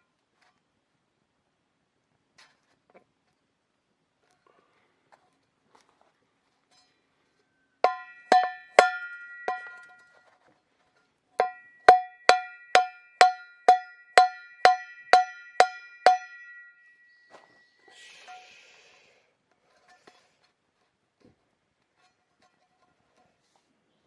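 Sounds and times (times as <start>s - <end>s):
metal object struck ringing: 7.9s - 10.1s, 11.4s - 17.3s.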